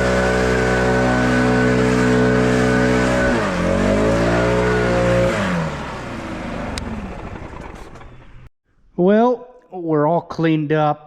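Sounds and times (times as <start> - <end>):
engine running at high speed: 0.0 - 8.5.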